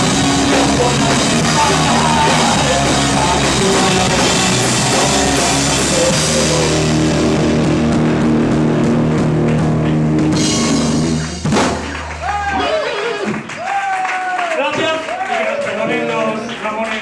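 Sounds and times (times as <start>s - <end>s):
live rock band playing: 0.0s - 13.5s.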